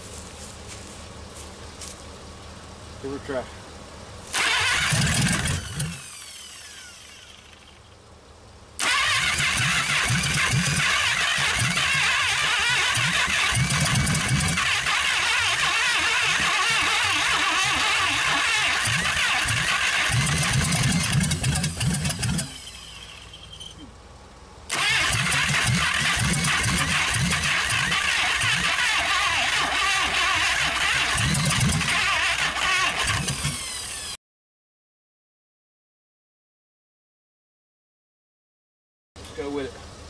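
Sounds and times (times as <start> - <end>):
car engine starting unevenly: 4.2 - 8.0, 8.7 - 23.9, 24.6 - 34.2
engine winding down: 4.3 - 8.1, 8.8 - 23.9, 24.7 - 34.2.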